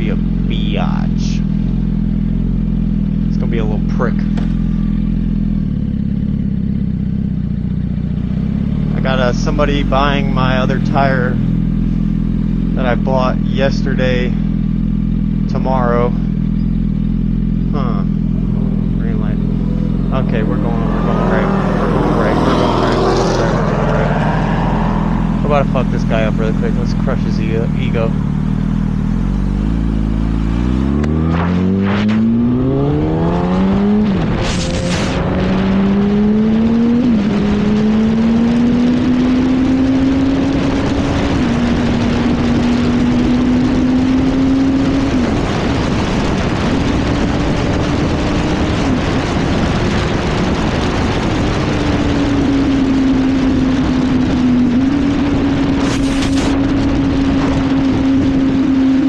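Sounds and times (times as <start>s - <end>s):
motorcycle engine accelerating: 0.0s - 59.0s
wind rush: 20.6s - 25.6s, 31.2s - 59.0s.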